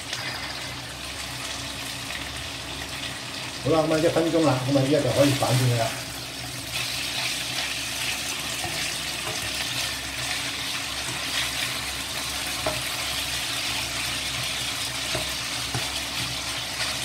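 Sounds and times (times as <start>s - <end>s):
chicken sizzling in oil: 0.0s - 17.0s
spatula scraping and tapping pan: 8.5s - 10.4s, 12.4s - 13.3s, 14.4s - 17.0s.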